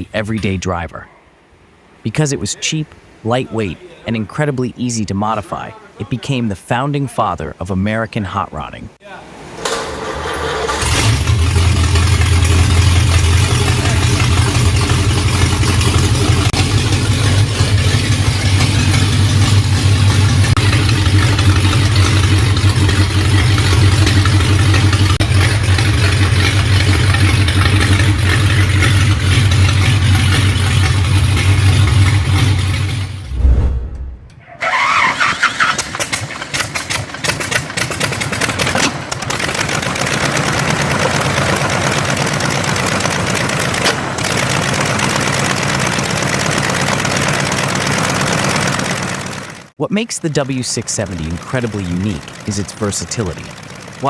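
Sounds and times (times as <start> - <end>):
different engine sound: 8.4 - 54.0
engine running steadily: 9.4 - 34.3, 35.5 - 49.7, 50.4 - 54.0.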